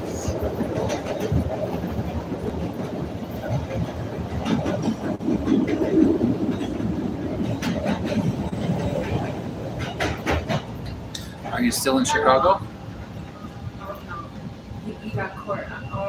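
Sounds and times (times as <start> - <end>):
train wheels rumbling on rail: 0.0 - 11.9
wheels clacking over rail joints: 0.4 - 11.0.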